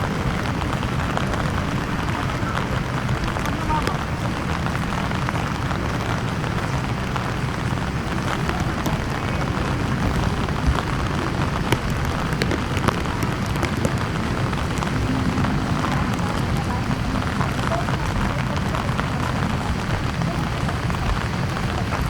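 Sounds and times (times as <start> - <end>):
low rumble: 0.0 - 21.8
raindrops ticking: 0.0 - 22.0
steady rainfall: 0.0 - 22.0.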